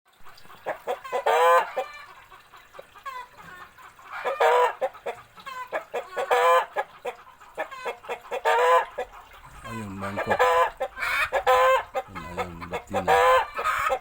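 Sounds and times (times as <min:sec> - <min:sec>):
chickens clucking: 0:00.3 - 0:14.0
chicken squawking: 0:00.6 - 0:02.1, 0:03.0 - 0:14.0.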